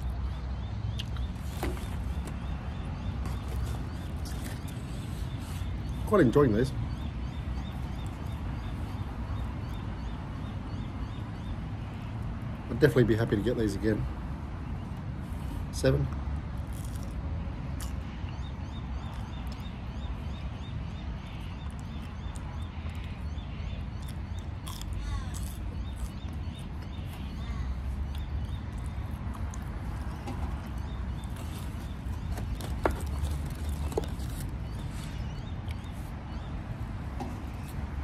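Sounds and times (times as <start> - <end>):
man chewing crunchy food: 23.8 - 27.2, 28.1 - 35.9.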